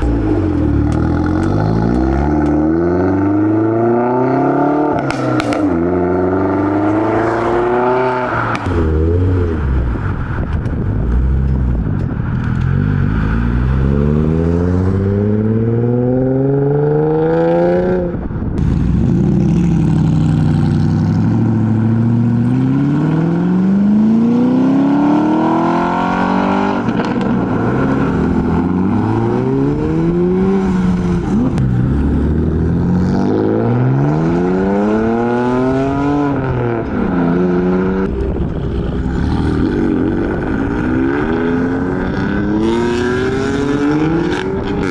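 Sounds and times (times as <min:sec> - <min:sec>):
car engines accelerating hard: 0:00.0 - 0:44.9.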